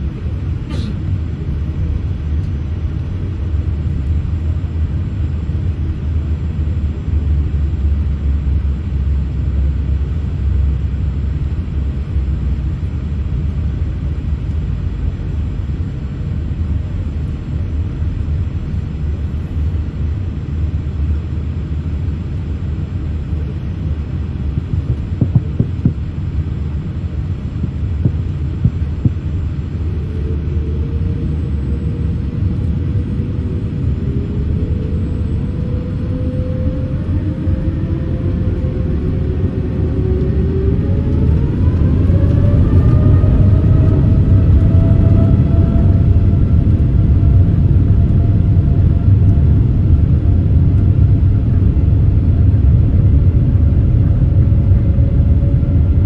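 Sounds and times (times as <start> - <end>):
faint rising whine: 0.0 - 56.0
jet engines rumbling in cabin: 0.0 - 56.0.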